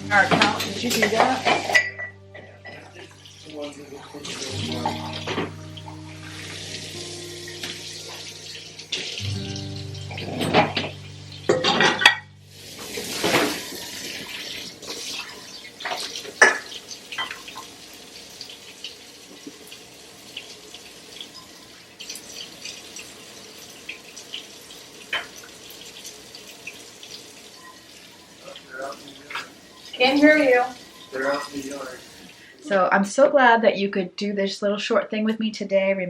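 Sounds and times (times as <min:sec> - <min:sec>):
background music: 0:00.0 - 0:14.6
water running at sink: 0:00.0 - 0:33.0
dishes and cutlery clinking: 0:00.1 - 0:06.0, 0:10.1 - 0:17.7, 0:25.1 - 0:26.1, 0:27.6 - 0:31.9.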